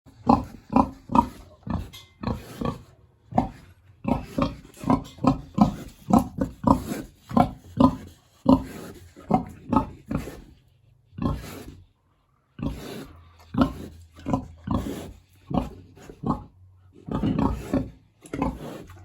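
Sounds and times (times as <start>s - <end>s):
pig grunting: 0.1s - 19.0s.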